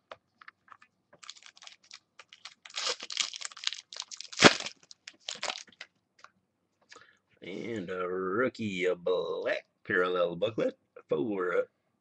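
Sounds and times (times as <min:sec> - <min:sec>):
cards and wrappers crinkling: 0:00.4 - 0:05.9.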